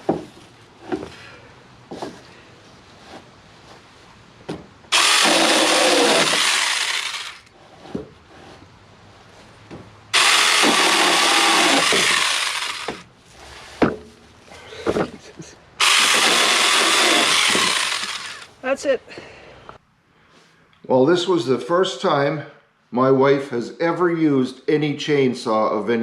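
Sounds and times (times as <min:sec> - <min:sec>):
electric chainsaw cutting branches: 0:04.9 - 0:07.5, 0:10.2 - 0:13.1, 0:15.8 - 0:18.5.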